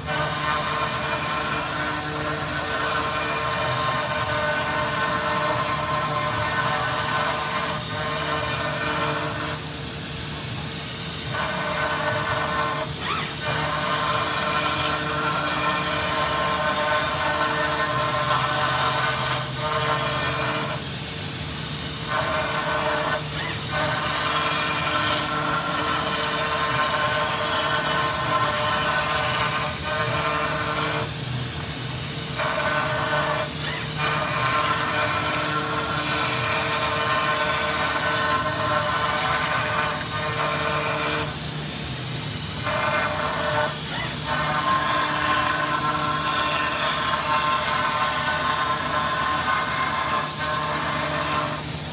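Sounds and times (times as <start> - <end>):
machine cutting metal whine: 0.0 - 51.9.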